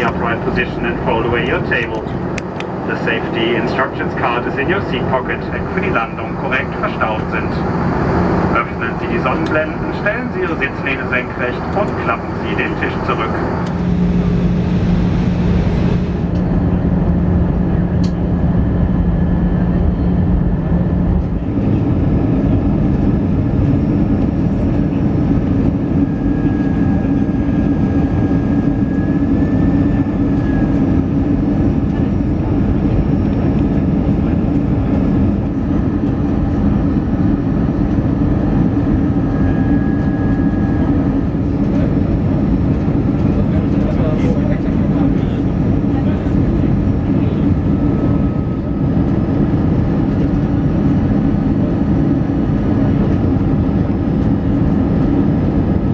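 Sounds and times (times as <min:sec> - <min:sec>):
airplane cabin noise in flight: 0:00.0 - 0:55.9
low engine hum: 0:00.0 - 0:55.9.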